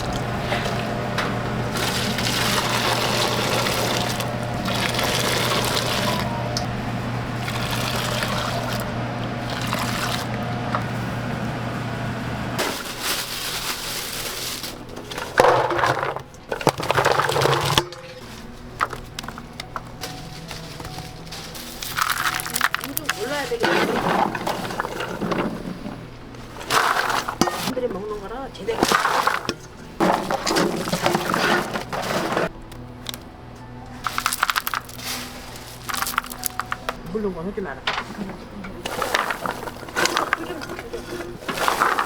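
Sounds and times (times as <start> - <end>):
water running and splashing: 0.0 - 6.4, 7.4 - 10.5
steady low hum: 0.0 - 12.6.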